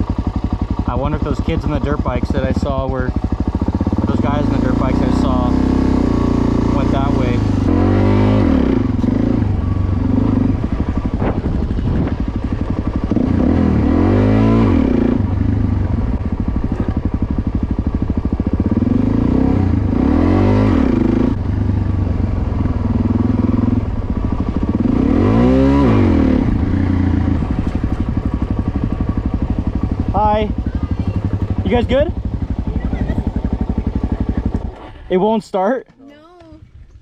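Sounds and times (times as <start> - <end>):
motorcycle engine revving: 0.0 - 35.4.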